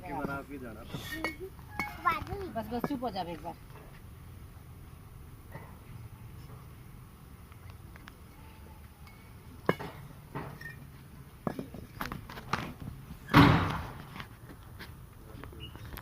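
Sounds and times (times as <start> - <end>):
bricks knocking and thudding: 9.6 - 14.3.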